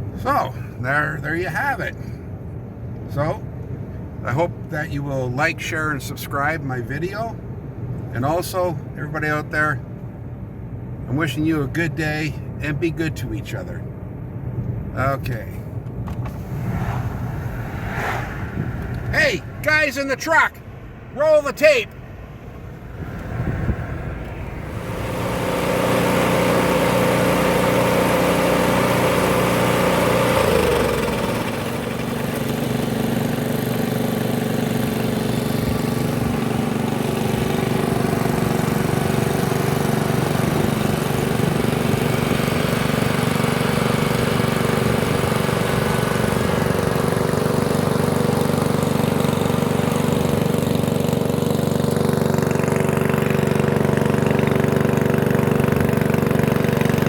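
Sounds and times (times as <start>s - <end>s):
engine running: 13.9s - 57.0s.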